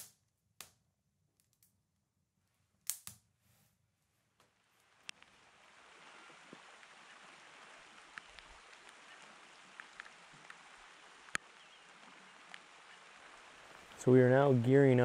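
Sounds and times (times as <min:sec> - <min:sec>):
light rain hiss: 0:02.9 - 0:15.0
raindrops ticking: 0:04.8 - 0:15.0.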